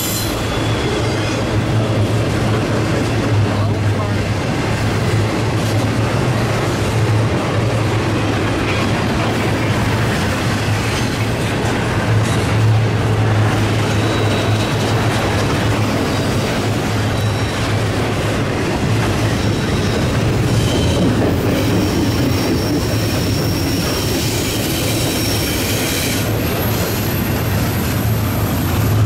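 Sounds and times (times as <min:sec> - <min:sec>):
high wheel squeal: 0:00.0 - 0:01.9, 0:13.7 - 0:15.3, 0:17.0 - 0:17.9, 0:19.2 - 0:29.0
train wheels rumbling on rails: 0:00.0 - 0:29.0.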